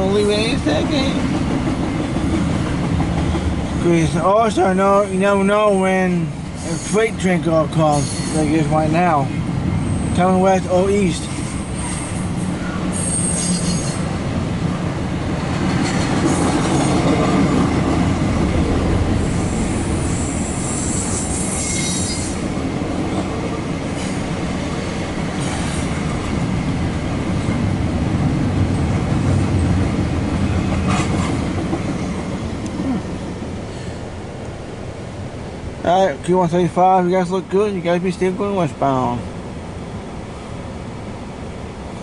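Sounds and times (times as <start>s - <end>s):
freight train cars rumbling: 0.0s - 42.0s
wheel squeal: 7.9s - 8.5s, 11.4s - 14.1s, 19.3s - 22.4s.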